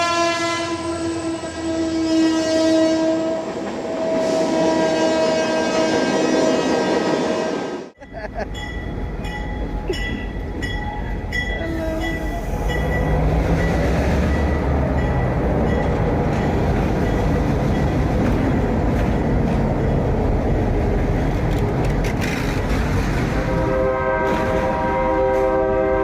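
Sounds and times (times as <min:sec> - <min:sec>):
train rumbling on rails: 0:00.6 - 0:26.0.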